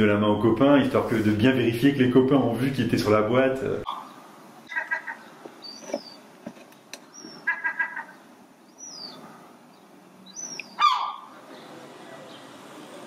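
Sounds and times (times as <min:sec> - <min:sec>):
loud falling bird call: 0:07.2 - 0:08.2, 0:10.4 - 0:11.4.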